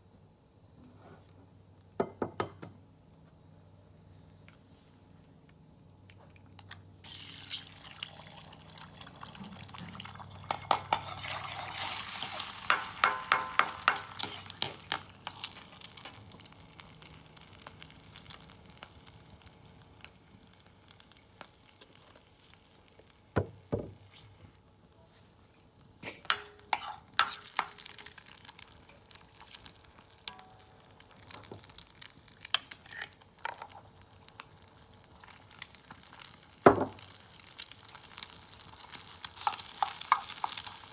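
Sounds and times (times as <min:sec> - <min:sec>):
food sizzling in a wok: 0:07.0 - 0:23.2, 0:25.6 - 0:40.9
metal utensil clattering in pan: 0:10.5 - 0:16.1, 0:26.2 - 0:28.1.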